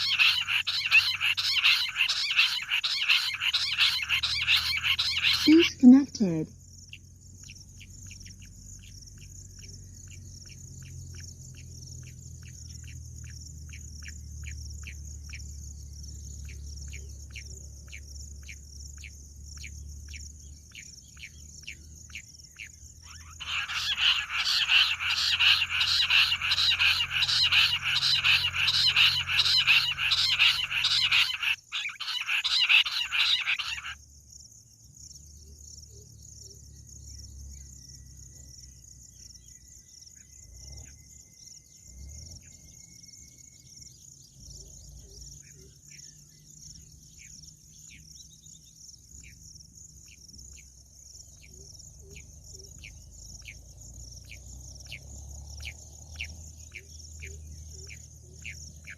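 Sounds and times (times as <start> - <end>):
quail rapid chattering call: 0.0 - 5.8, 23.0 - 34.0
high insect drone: 0.0 - 44.4, 45.1 - 58.9.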